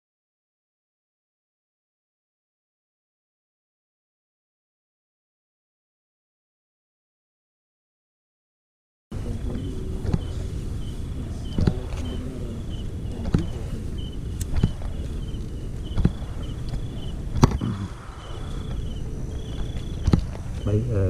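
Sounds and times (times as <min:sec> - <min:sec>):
low rumble: 0:09.1 - 0:21.0
night insects chirping: 0:09.1 - 0:21.0.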